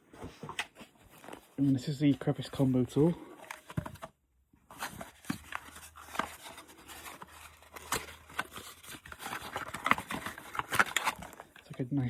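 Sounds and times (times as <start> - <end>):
plastic packaging crinkling: 4.7 - 11.8.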